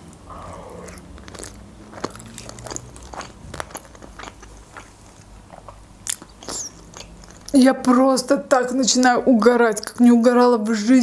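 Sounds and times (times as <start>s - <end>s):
person chewing with mouth clicks: 0.0s - 7.6s.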